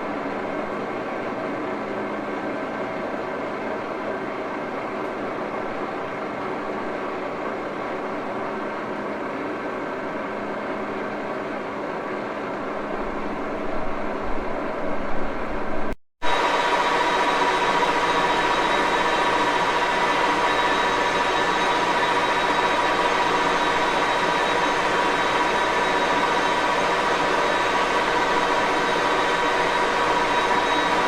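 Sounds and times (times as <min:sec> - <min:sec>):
lathe gearbox whine: 0:16.3 - 0:31.0.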